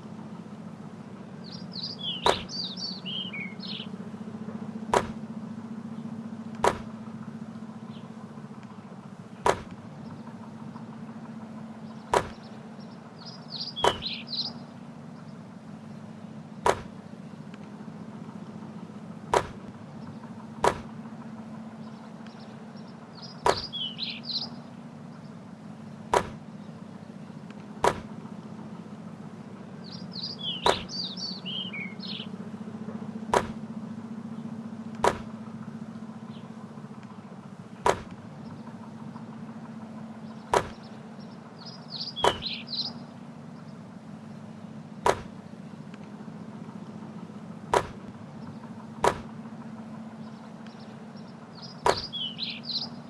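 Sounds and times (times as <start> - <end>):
birds chirping: 0.0 - 53.0
low hum: 0.0 - 53.0
basketball thudding: 2.2 - 2.5, 4.9 - 5.2, 6.6 - 7.0, 9.4 - 9.8, 12.1 - 12.5, 13.8 - 14.1, 16.6 - 17.0, 19.3 - 19.8, 20.6 - 21.0, 23.4 - 23.7, 26.1 - 26.4, 27.8 - 28.1, 30.6 - 30.9, 33.3 - 33.6, 35.0 - 35.4, 37.8 - 38.2, 40.5 - 40.8, 42.2 - 42.5, 45.0 - 45.4, 47.7 - 48.2, 49.0 - 49.3, 51.8 - 52.1.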